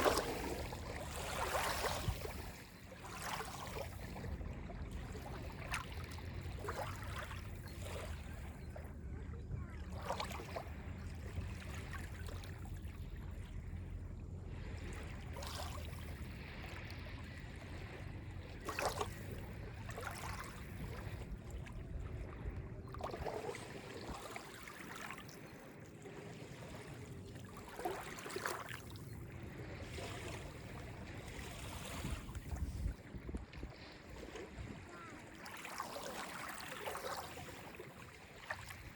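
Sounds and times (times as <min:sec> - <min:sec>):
lake waves lapping on beach: 0:00.0 - 0:08.6, 0:09.8 - 0:13.6, 0:14.5 - 0:38.9
low steady rumble: 0:03.9 - 0:23.9.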